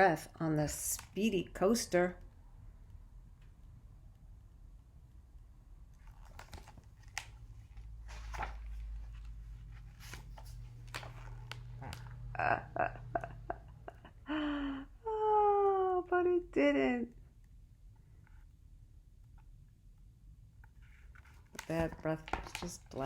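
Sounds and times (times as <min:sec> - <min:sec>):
low room hum: 0:00.0 - 0:23.0
paper rustling and crinkling: 0:06.0 - 0:12.2, 0:20.8 - 0:23.0.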